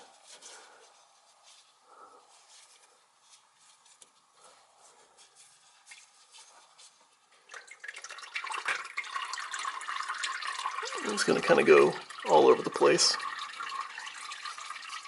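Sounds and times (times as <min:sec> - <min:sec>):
oil dripping into bucket: 0:07.4 - 0:15.0.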